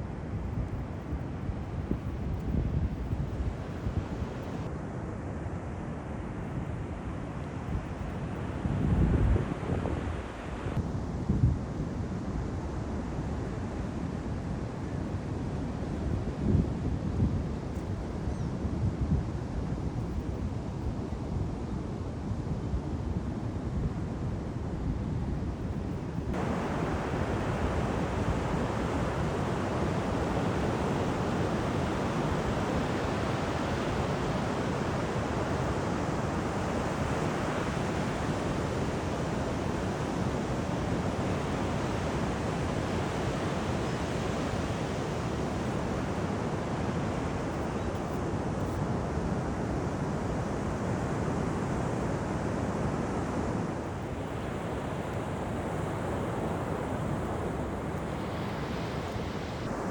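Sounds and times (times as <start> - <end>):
wind buffeting microphone: 23.8 - 46.6
ocean surf breaking on beach: 26.3 - 59.9.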